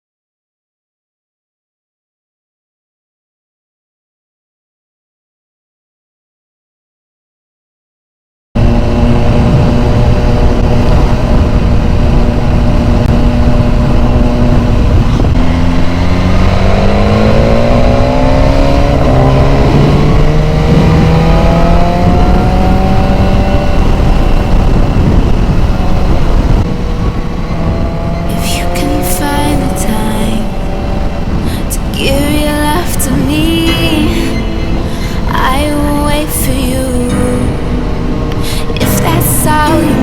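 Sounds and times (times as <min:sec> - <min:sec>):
motorcycle engine accelerating: 0:08.6 - 0:40.0
wind rushing on microphone: 0:08.6 - 0:40.0.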